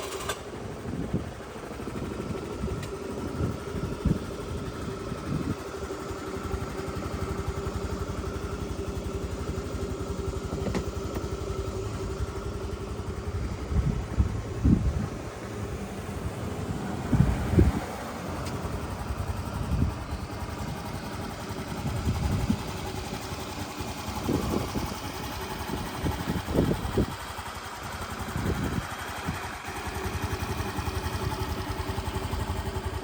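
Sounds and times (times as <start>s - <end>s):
scooter engine idling: 0.0s - 33.0s
engine knocks: 6.7s - 15.1s.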